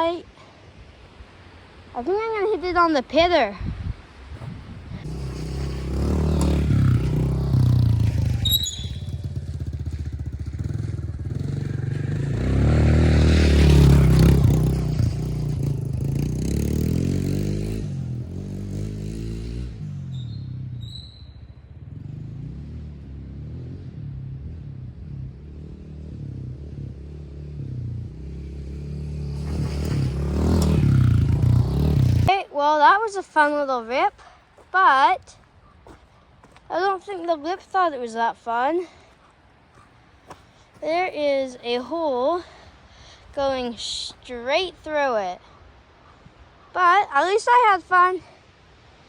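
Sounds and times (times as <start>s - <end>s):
pit bike engine revving: 5.0s - 32.3s.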